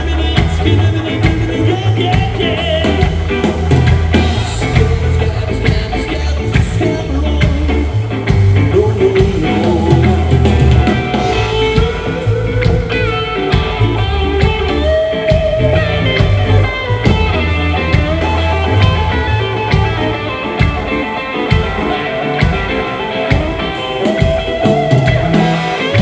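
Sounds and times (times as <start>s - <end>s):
bass guitar: 0.0s - 26.0s
drums: 0.0s - 26.0s
electric guitar: 0.0s - 26.0s.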